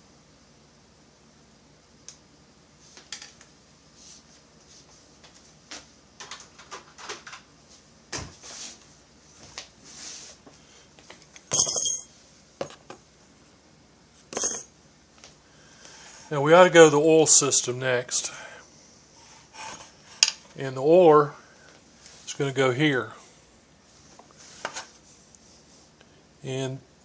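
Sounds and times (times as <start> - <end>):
metal parts clinking: 11.4 - 12.1, 14.4 - 14.7.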